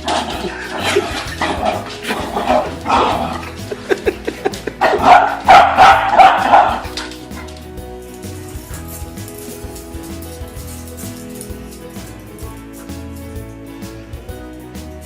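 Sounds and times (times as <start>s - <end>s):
dog barking: 0.0s - 3.6s, 4.8s - 7.5s
background music: 0.0s - 15.0s.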